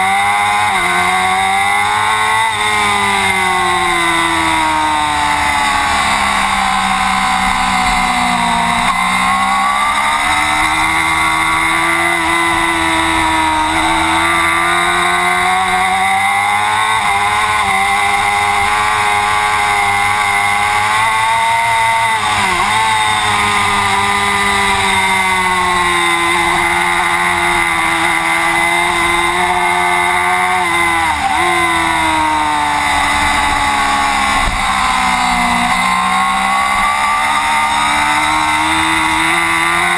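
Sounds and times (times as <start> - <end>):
racing motorcycle engine revving: 0.0 - 39.9.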